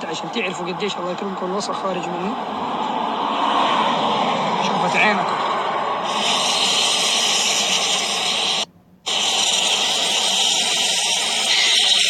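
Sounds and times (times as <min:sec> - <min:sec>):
aerosol spray hissing: 0:06.0 - 0:12.0.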